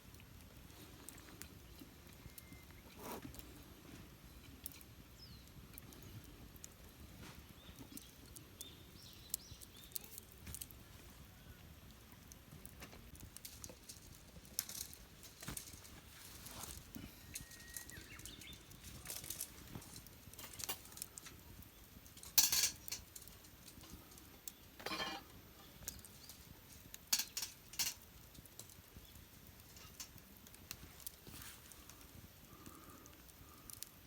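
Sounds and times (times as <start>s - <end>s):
small objects clicking and tapping: 4.4s - 10.8s, 12.2s - 34.0s
scraping rustles: 13.4s - 21.1s.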